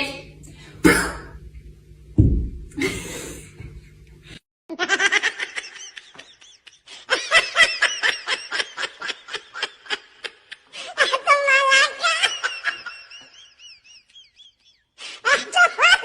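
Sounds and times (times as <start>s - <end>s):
person laughing: 2.8s - 3.7s.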